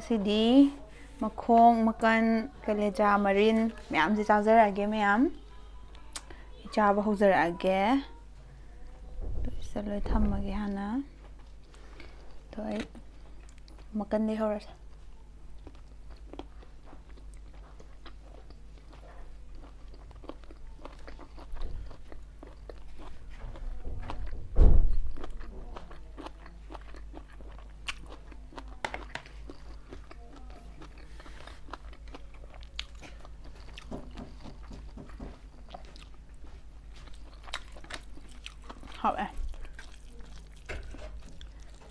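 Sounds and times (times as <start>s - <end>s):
chewing and biting chicken: 15.5s - 41.9s.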